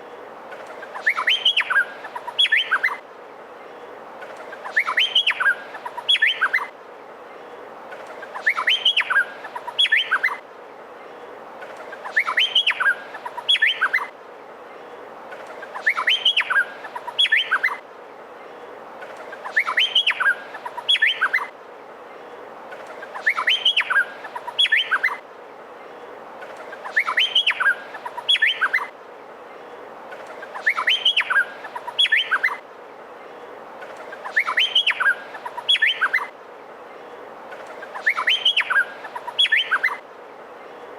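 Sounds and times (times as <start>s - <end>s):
background hiss: 0.0s - 40.9s
bird singing whistled notes: 0.9s - 3.0s, 4.6s - 6.7s, 8.4s - 10.4s, 12.0s - 14.1s, 15.8s - 17.8s, 19.4s - 21.5s, 23.1s - 25.2s, 26.8s - 28.9s, 30.5s - 32.6s, 34.2s - 36.3s, 37.9s - 40.0s.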